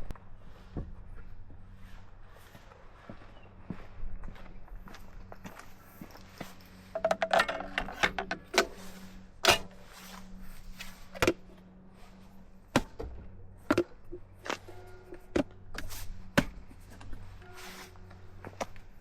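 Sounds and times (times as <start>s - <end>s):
metallic clicks and rattles: 7.0s - 8.8s.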